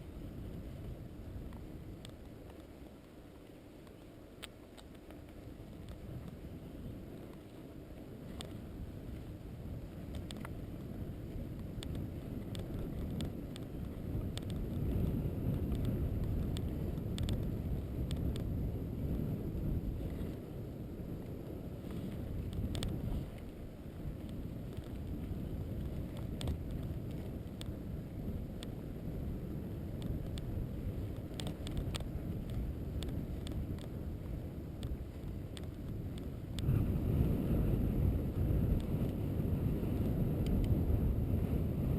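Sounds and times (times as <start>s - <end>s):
wind on microphone: 0.0s - 41.9s
vehicle rumble on rough road: 9.2s - 41.9s.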